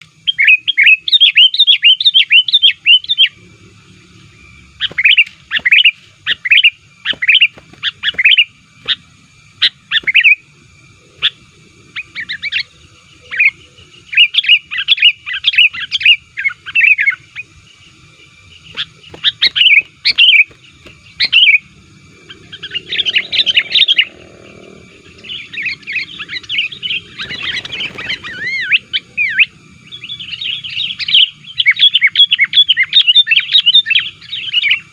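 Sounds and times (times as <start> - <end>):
bulbul bubbly chirping: 18.6 - 31.0.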